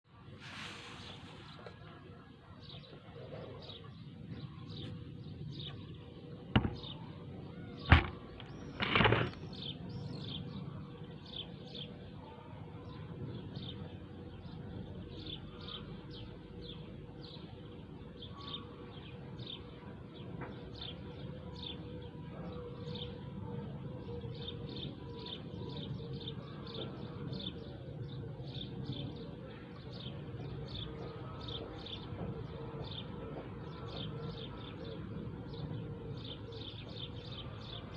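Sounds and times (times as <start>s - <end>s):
low background noise: 0.1s - 37.9s
small birds chirping: 0.8s - 37.9s
sharp knocks: 6.5s - 6.9s, 7.9s - 9.3s.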